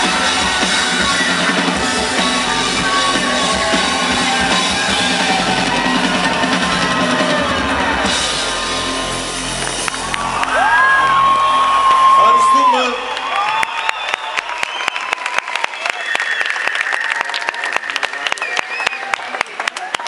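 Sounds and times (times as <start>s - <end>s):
live rock band playing: 0.0s - 12.4s.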